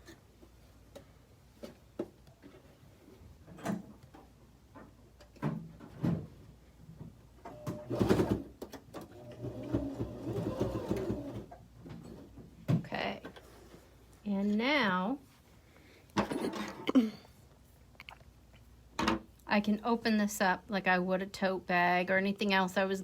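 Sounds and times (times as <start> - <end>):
sewing machine stitching: 7.5 - 11.5.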